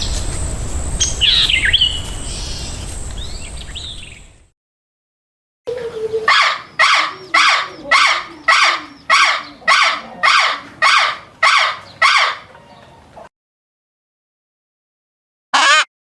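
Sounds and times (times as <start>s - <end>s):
animal calling loudly: 5.9s - 12.6s, 15.6s - 15.9s.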